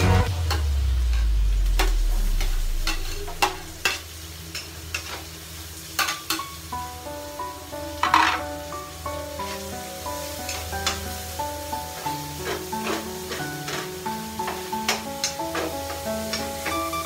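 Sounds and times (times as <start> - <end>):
low hum: 0.0 - 4.0
onion sizzling in hot oil: 0.3 - 17.0.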